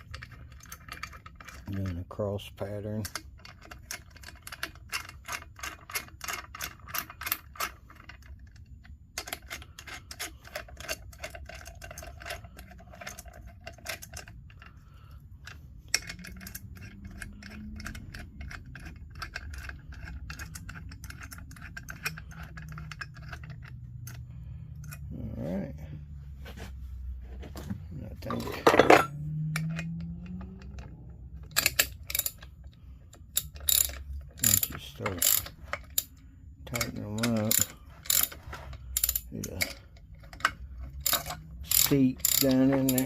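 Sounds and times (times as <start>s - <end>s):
socket ratchet clicking: 15.4s - 24.2s, 29.3s - 43.0s.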